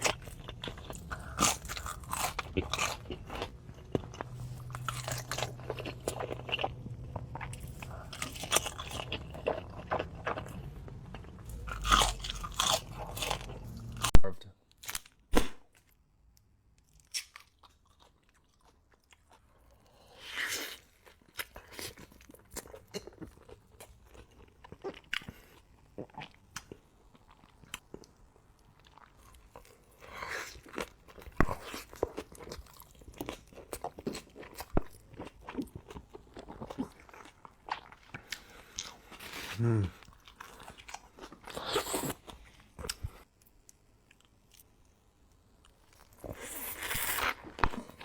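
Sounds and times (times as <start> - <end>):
crunchy bites and chewing: 0.0 - 15.8, 28.8 - 43.2, 45.6 - 48.0.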